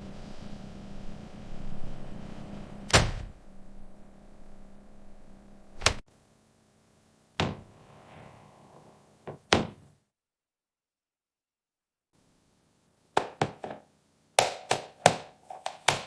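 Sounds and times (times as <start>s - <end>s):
low hum: 0.0s - 6.0s
sharp knocks: 7.4s - 7.8s.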